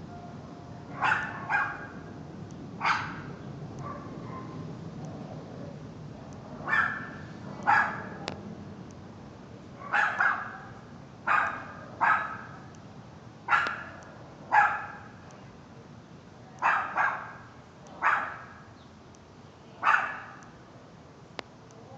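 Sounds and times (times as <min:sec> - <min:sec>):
dog barking: 0:00.9 - 0:02.0, 0:02.8 - 0:04.6, 0:06.6 - 0:08.2, 0:09.8 - 0:12.6, 0:13.5 - 0:15.1, 0:16.6 - 0:18.6, 0:19.8 - 0:20.4.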